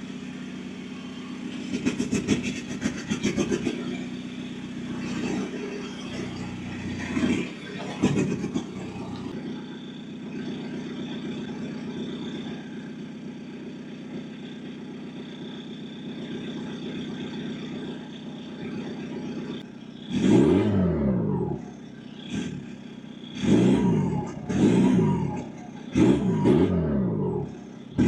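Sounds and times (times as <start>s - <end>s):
diesel engine idling and revving: 0.0s - 28.0s.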